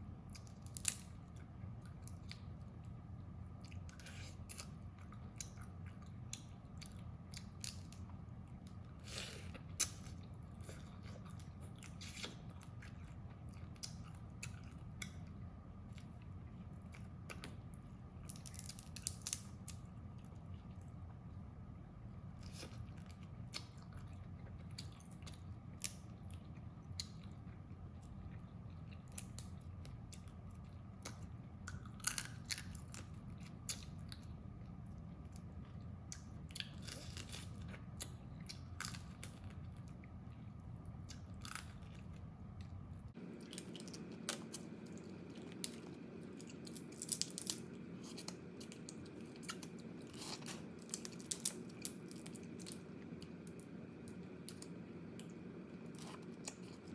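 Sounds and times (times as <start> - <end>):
crab shells crunching in chewing: 18.2 - 19.9, 30.9 - 34.2, 35.1 - 40.0, 41.1 - 42.2, 43.2 - 56.9.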